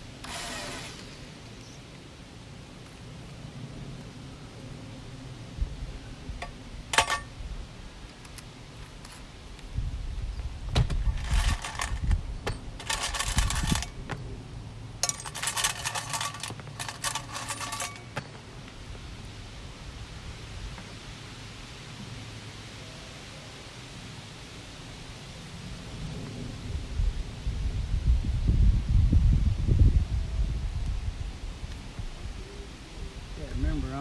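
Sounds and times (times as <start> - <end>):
small metal pieces jingling: 7.0 - 7.2, 11.1 - 18.4.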